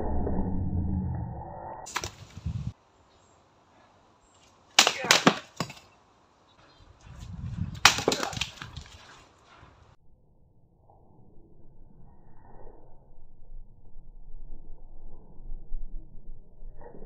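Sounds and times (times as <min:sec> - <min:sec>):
wooden boards cracking: 0:04.8 - 0:05.9, 0:07.8 - 0:09.1.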